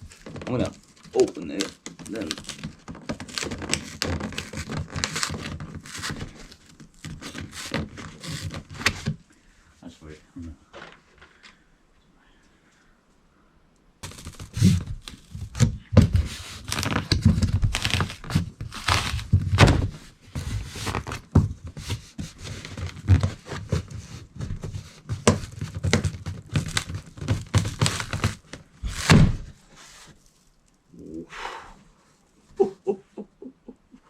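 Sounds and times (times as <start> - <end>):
cardboard crinkling and tearing: 0.0 - 9.2, 14.0 - 31.1
cardboard box thumps and knocks: 23.0 - 29.6.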